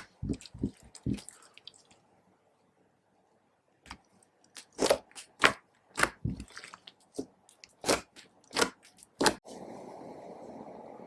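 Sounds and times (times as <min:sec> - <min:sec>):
slime squished by hand: 0:03.9 - 0:09.4.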